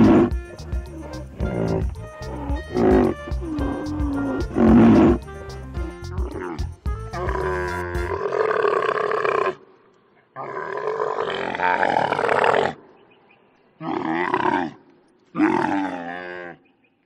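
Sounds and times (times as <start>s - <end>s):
camel calling: 0.0s - 9.7s.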